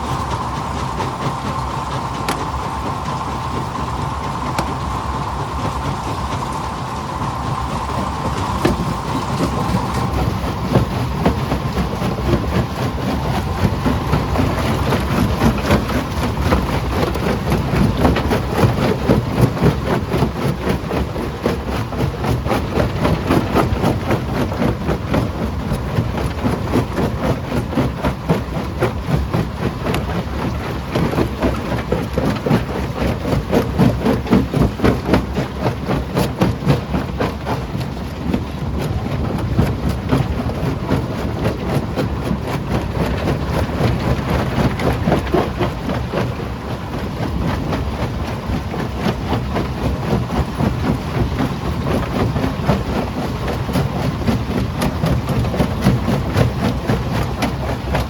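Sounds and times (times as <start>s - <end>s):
heavy machine drone: 0.0s - 26.8s.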